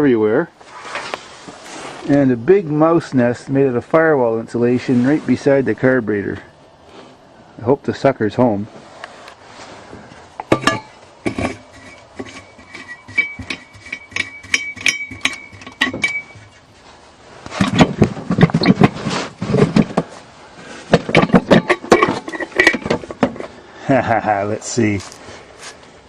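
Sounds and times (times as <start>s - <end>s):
rustling and knocking: 9.9s - 23.6s
metallic clicks and clinks: 12.7s - 16.6s.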